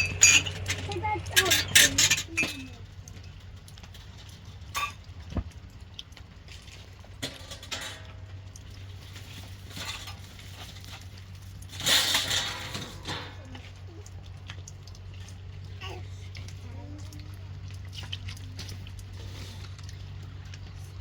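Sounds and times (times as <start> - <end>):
knocks and clatter of handling: 0.0 - 5.9, 6.5 - 13.8.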